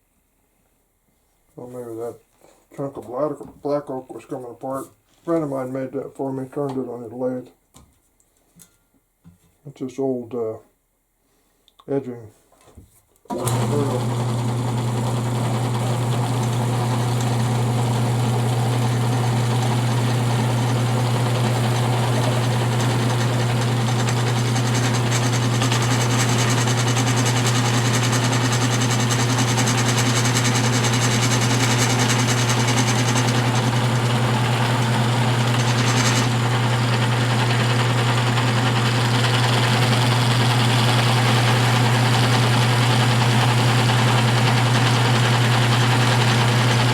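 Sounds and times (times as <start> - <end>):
electric motor humming: 13.4 - 46.9.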